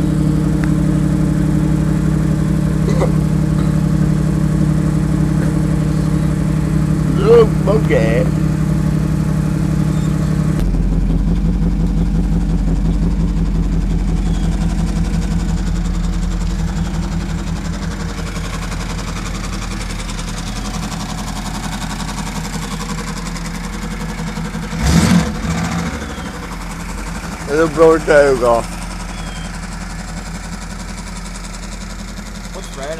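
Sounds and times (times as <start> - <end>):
car engine idling: 0.0 - 32.9.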